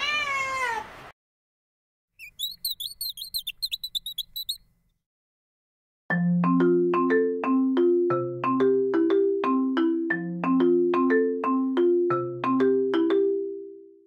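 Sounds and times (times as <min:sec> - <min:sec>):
cat meowing: 0:00.0 - 0:00.9
high bird chirps: 0:02.2 - 0:04.7
marimba tune: 0:06.1 - 0:13.8.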